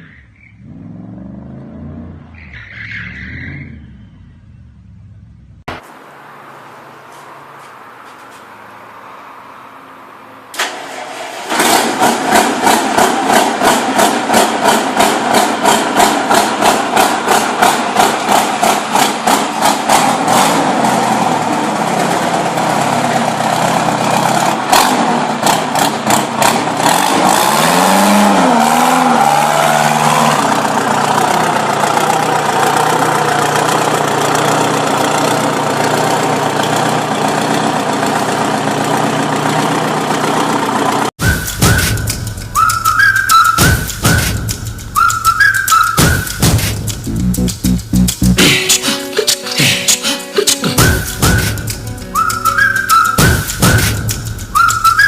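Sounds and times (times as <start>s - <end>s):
motorcycle engine running loudly: 11.8s - 27.8s, 30.4s - 41.1s.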